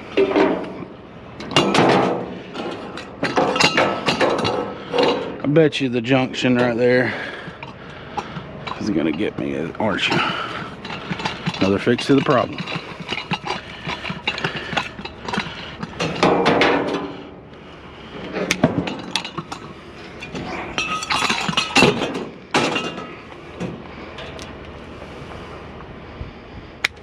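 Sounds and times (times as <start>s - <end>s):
metal parts clattering: 1.4s - 5.4s, 8.6s - 17.2s, 18.2s - 23.2s
metallic clinks and knocks: 1.4s - 5.4s, 7.5s - 17.1s, 18.4s - 23.1s.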